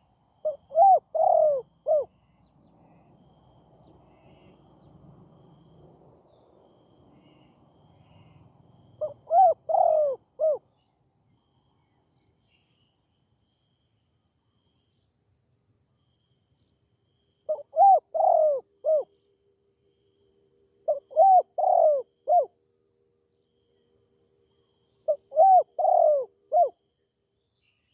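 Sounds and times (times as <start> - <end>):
dove cooing: 0.0 - 2.1, 9.0 - 10.6, 17.5 - 19.1, 20.9 - 22.5, 25.0 - 26.8.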